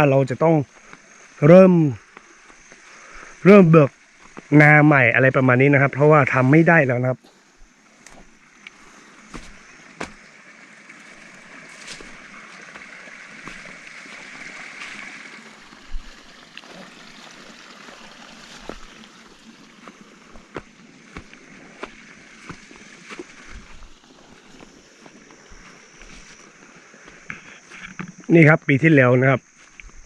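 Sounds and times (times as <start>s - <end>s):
outdoor hiss: 0.0s - 30.0s
footsteps on dry vegetation: 2.0s - 3.3s, 4.0s - 4.5s, 7.2s - 28.1s.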